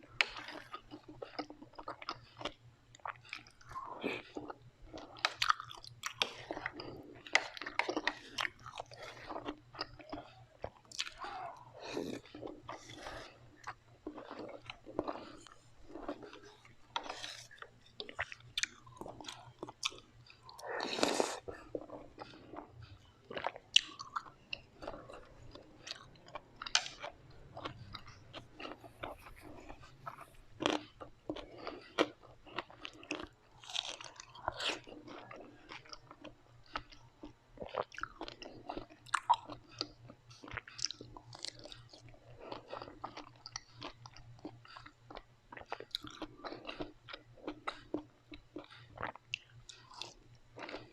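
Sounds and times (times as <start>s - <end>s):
crisp chewing crunches: 0.0s - 50.9s.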